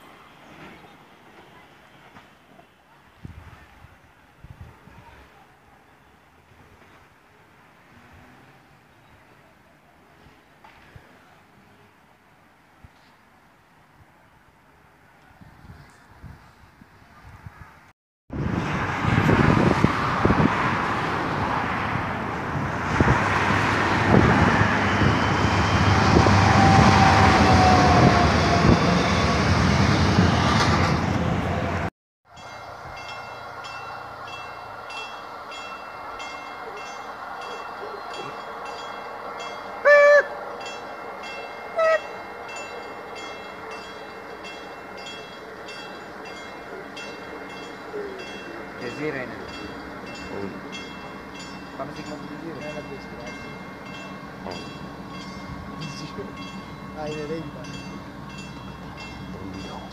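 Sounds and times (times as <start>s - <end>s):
train rumble and wheel clatter: 0.0s - 59.9s
train horn toots: 24.7s - 29.6s, 39.8s - 40.4s, 41.7s - 42.3s.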